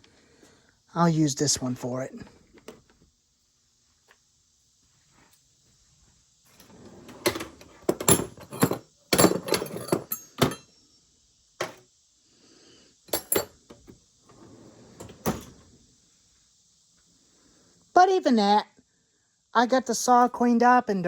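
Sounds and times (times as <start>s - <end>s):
metal hand tools clinking: 8.0s - 10.6s, 13.1s - 13.6s.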